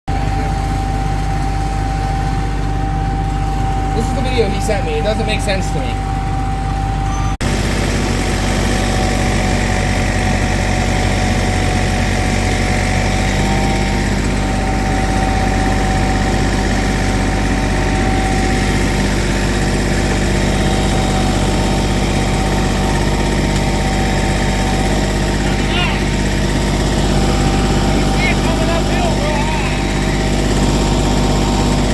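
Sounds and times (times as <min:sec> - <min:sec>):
engine idling: 0:00.1 - 0:31.9
steady whine: 0:00.1 - 0:31.9.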